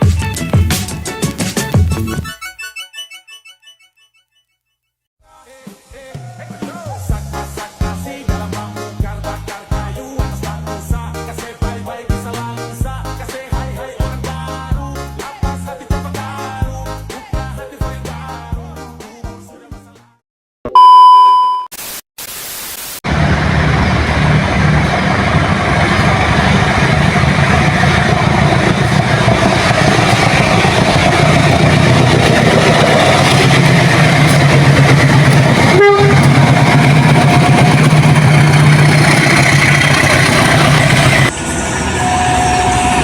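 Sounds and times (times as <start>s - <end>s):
short high beep: 20.7s - 21.7s
train rumbling on rails: 23.1s - 43.0s.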